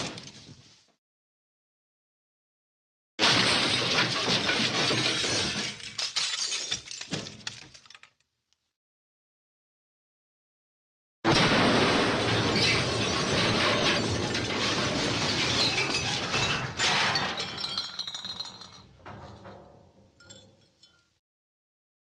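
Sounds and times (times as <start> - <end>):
glass breaking with clattering debris: 3.2 - 8.2, 11.3 - 21.2.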